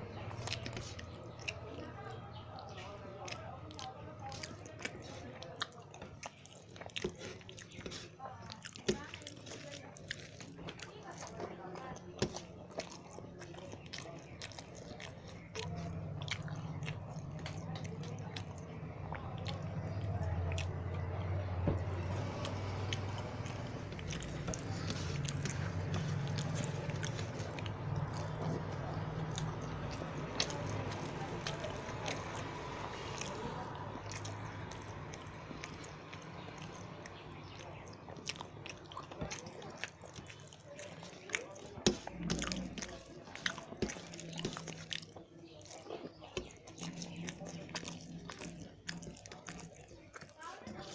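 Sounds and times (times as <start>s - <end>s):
faint low hum: 0.0s - 50.9s
person chewing: 0.0s - 50.9s
wet mouth clicks and smacks: 22.4s - 50.9s.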